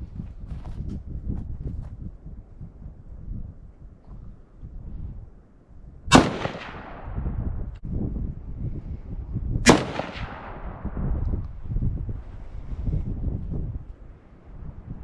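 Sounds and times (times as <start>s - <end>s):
gunshot with echo: 6.1s - 7.2s, 9.6s - 11.0s.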